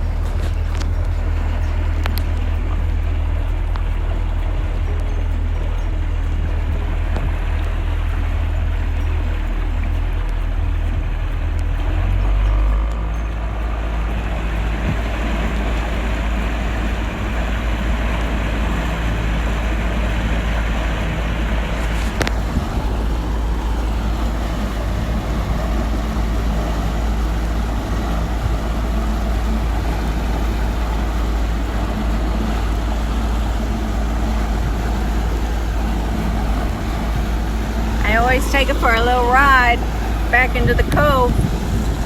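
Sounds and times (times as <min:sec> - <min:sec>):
sharp tick: 0:00.0 - 0:27.4
motorboat engine running: 0:00.0 - 0:42.0
water noise: 0:00.0 - 0:42.0
wind noise: 0:00.0 - 0:42.0.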